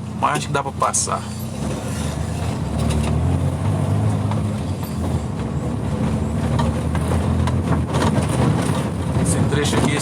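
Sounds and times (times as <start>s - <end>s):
knocks and rattles: 4.2s - 10.0s.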